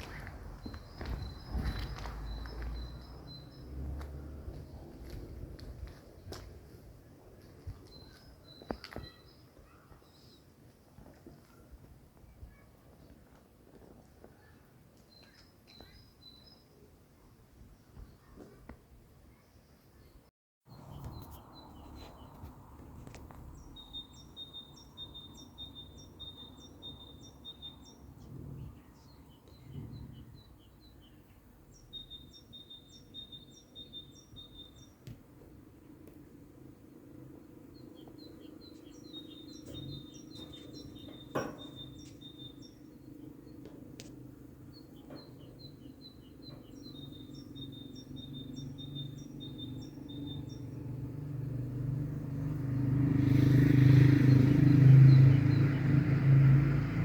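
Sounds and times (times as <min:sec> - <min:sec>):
vehicle rumble approaching: 0:00.0 - 0:07.8, 0:46.6 - 0:57.0
songbird singing: 0:00.0 - 0:57.0.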